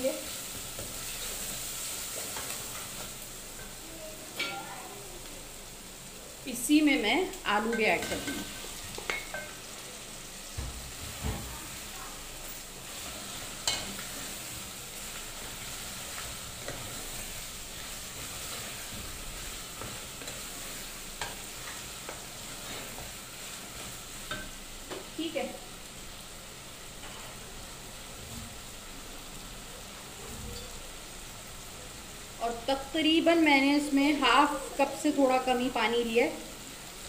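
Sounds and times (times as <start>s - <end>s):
vegetables sizzling in oil: 0.0s - 37.0s.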